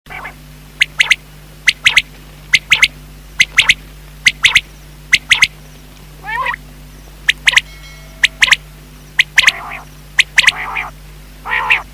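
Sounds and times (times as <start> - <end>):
quail calling: 0.1 - 5.5, 6.2 - 6.6, 7.2 - 11.9
short buzzy bird call: 9.2 - 11.9.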